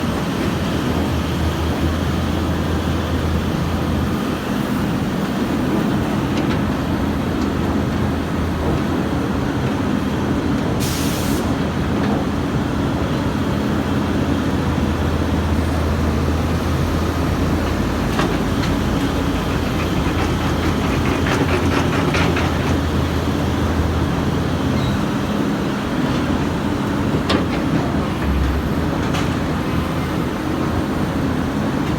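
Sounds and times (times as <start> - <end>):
excavator diesel engine running: 11.5 - 31.9.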